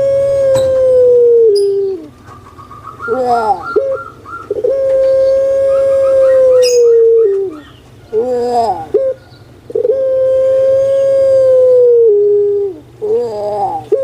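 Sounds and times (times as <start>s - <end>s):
dove cooing: 0.0s - 14.0s
small bird chirping: 1.5s - 9.6s.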